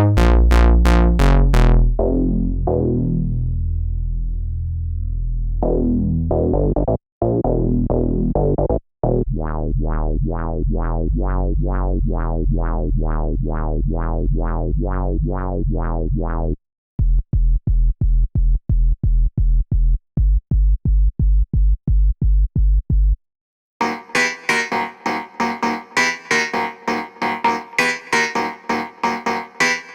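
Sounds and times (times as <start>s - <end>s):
pulsing synth bass: 0.0s - 16.6s, 23.8s - 29.9s.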